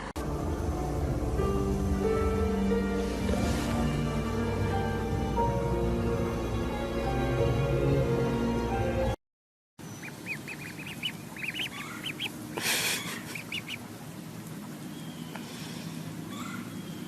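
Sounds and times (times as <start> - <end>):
background music: 0.0 - 9.2
small animal chirping: 9.9 - 12.4, 13.0 - 13.8.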